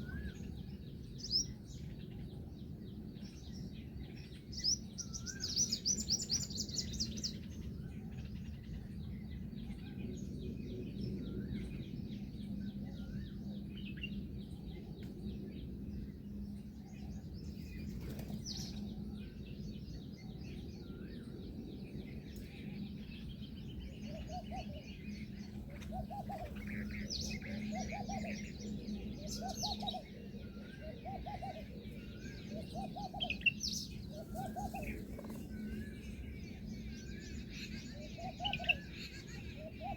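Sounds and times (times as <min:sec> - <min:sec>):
birds chattering: 0:23.4 - 0:39.9.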